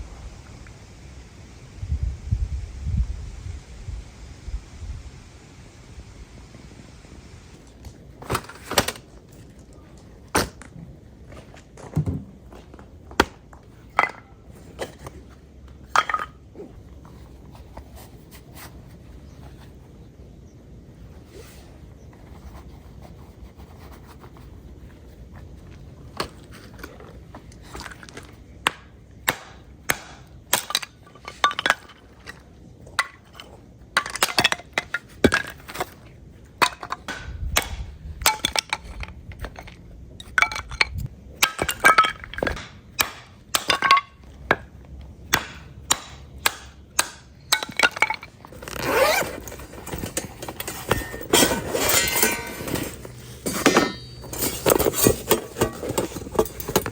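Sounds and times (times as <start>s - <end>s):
dishes clinking: 49.8s - 56.9s.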